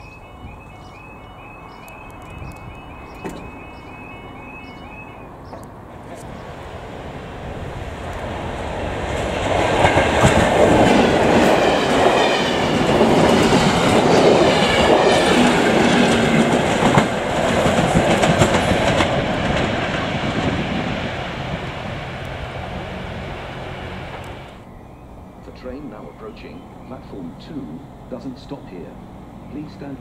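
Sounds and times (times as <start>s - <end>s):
train passing at speed: 0.0s - 30.0s
wheels clattering over rail joints: 8.0s - 24.6s.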